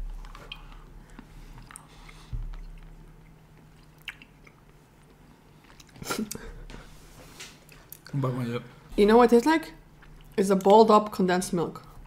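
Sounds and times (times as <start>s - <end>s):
wet mouth clicks: 3.8s - 4.7s.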